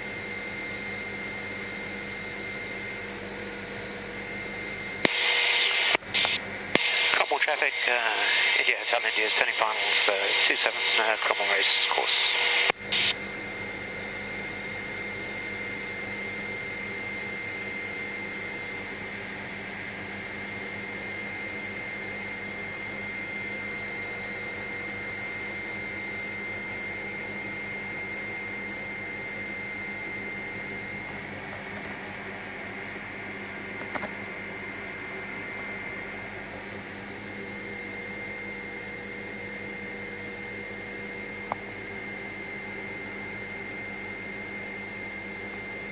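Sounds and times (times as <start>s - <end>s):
helicopter engine and rotor noise: 0.0s - 45.9s
high whine: 4.3s - 13.2s, 28.7s - 41.7s.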